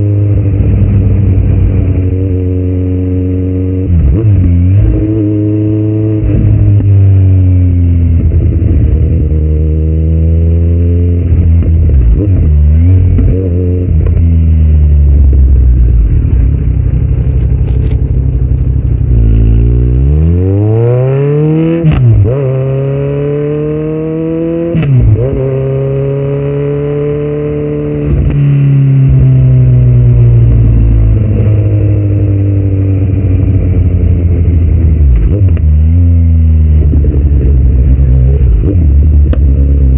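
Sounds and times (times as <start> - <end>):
motorcycle engine revving: 0.0 - 39.9
exhaust pops and crackles: 17.0 - 19.7.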